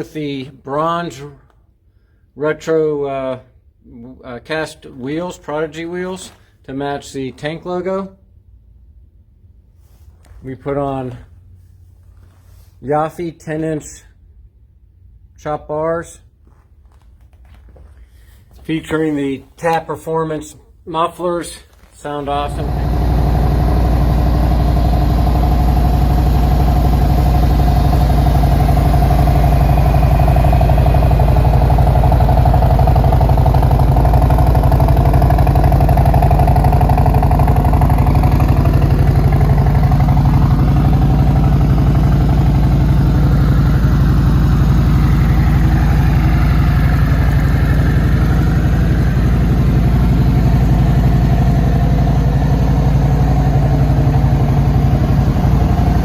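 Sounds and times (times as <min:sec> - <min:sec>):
motorcycle engine idling: 0:22.3 - 0:56.0.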